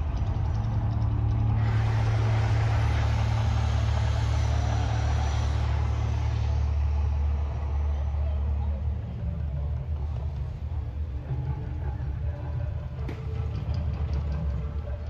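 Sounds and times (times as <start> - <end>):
rushing noise: 0.0 - 8.6
deep rumble of eruption effects: 0.0 - 10.8.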